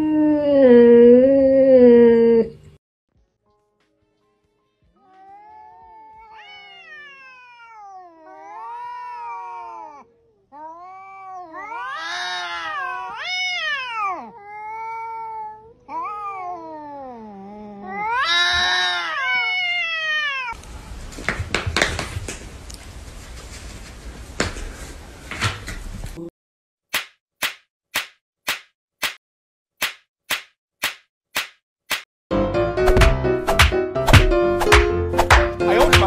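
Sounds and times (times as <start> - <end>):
cat yowling: 5.0 - 20.6.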